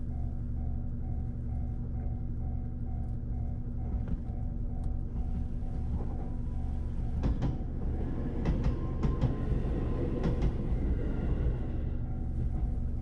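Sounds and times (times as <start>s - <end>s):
electric train rumbling: 0.0s - 13.0s
wheels clicking over rail joints: 7.2s - 11.1s.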